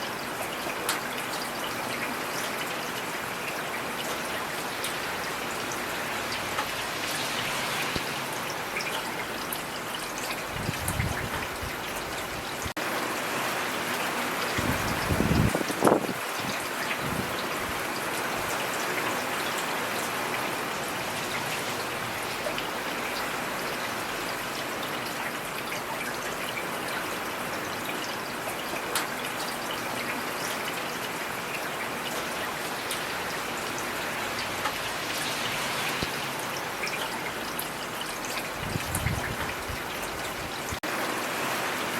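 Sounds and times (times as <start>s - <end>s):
rain hissing: 4.6s - 9.4s, 32.1s - 41.7s.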